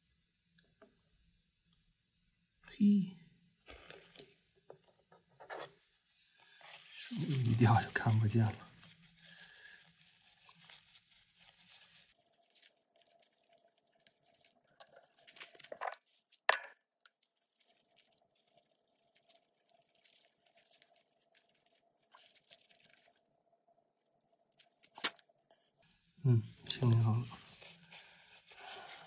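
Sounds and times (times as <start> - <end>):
paper tissue crinkling and rubbing: 5.5 - 16.4, 17.1 - 25.8, 26.8 - 29.0.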